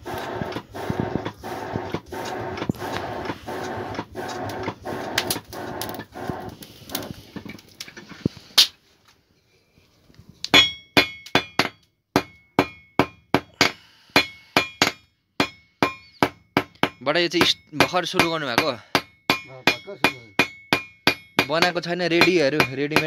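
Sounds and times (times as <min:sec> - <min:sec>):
forge air blower whirring: 0:00.0 - 0:07.1
blower rattle: 0:00.0 - 0:07.8
hammer striking iron on anvil: 0:10.5 - 0:23.0.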